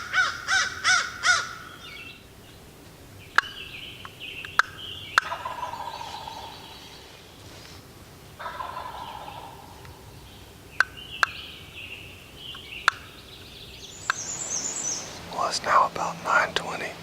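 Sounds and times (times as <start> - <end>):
high-pitched bird calls: 3.3 - 7.2, 8.4 - 15.3
turkey gobbling: 4.6 - 7.2, 8.3 - 11.5
sharp ticks: 12.5 - 13.2.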